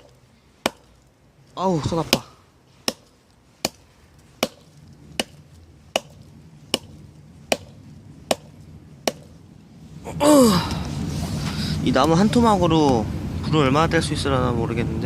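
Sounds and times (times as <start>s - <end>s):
hatchet chopping into log: 0.0s - 1.0s, 1.9s - 3.8s, 4.4s - 9.3s.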